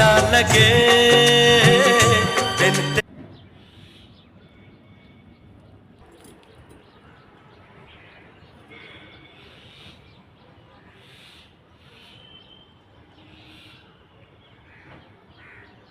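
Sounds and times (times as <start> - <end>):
faint bird chirps: 11.0 - 14.1.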